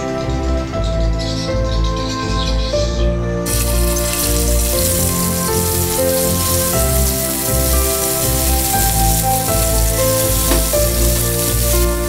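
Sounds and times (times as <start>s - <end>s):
background music with held notes: 0.0s - 12.0s
shallots sizzling in oil: 3.5s - 12.0s.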